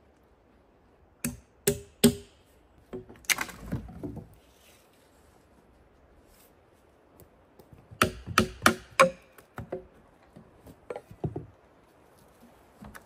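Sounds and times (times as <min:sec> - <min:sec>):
tool striking wood: 0:01.2 - 0:02.4, 0:08.0 - 0:09.8.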